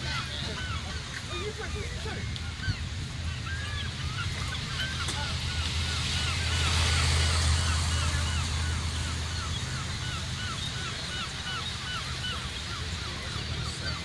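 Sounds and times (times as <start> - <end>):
motorcycle engines idling: 0.0 - 14.0.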